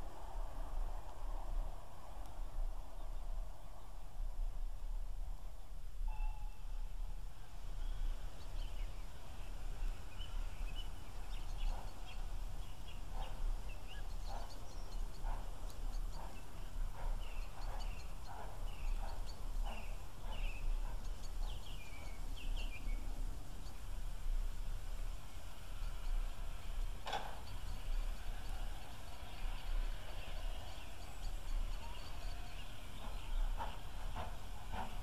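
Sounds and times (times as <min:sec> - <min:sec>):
birds chirping: 0:07.7 - 0:35.0.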